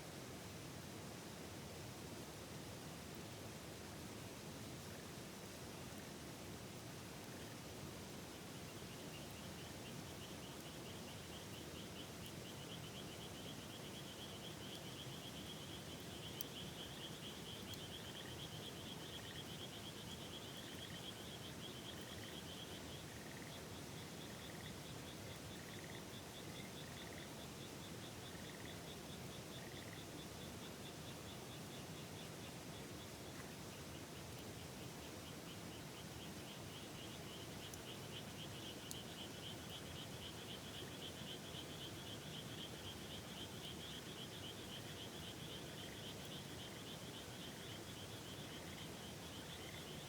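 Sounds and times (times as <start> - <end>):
frogs chirping: 8.8 - 32.3, 35.0 - 50.0
frogs trilling: 10.5 - 27.4, 28.0 - 30.2, 35.3 - 50.0.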